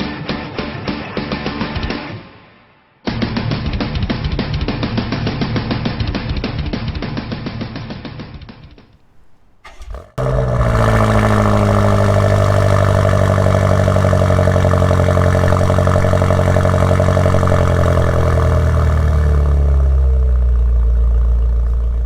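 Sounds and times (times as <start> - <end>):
car engine running loud: 9.1 - 22.0.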